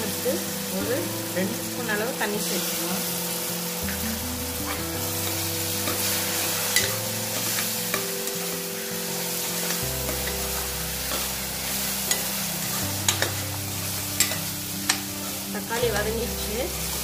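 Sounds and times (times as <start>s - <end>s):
vegetables sizzling in oil: 0.0s - 17.0s
ladle stirring and scraping: 9.5s - 15.5s
ladle clinking against pot: 14.2s - 15.0s.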